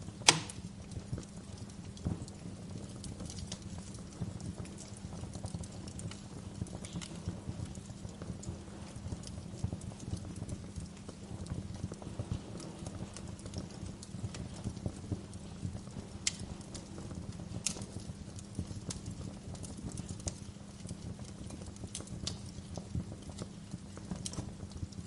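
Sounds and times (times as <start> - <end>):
wood fire crackling: 0.0 - 25.0
sharp fire pops: 0.3 - 1.0.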